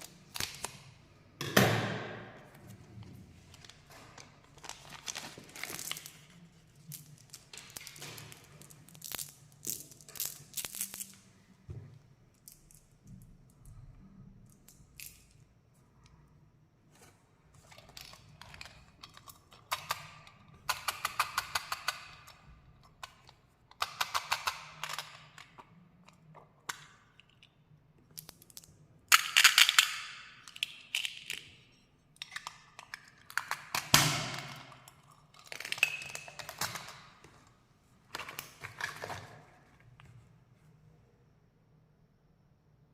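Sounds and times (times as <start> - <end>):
candy wrapper crinkling: 3.5 - 11.2.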